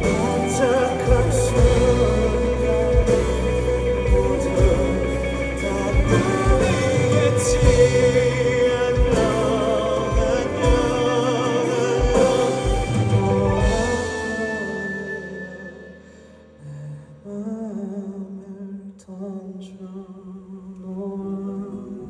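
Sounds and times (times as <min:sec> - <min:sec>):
live band playing slow song: 0:00.0 - 0:16.6
person singing: 0:00.0 - 0:22.0
kick drum beat: 0:07.5 - 0:08.2.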